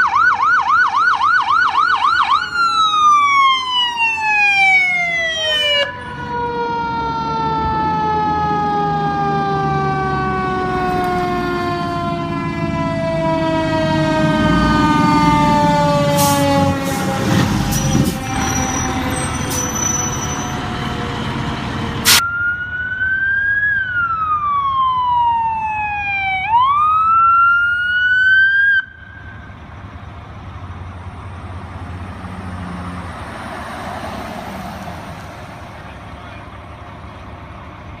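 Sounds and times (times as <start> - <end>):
fire truck siren wailing: 0.0 - 38.0
heavy truck noise: 2.1 - 22.4, 28.8 - 38.0
faint traffic hum: 25.8 - 38.0.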